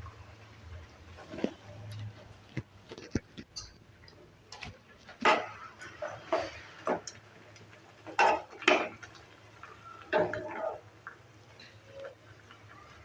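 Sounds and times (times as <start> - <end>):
spatula scraping a pan: 5.2 - 7.0.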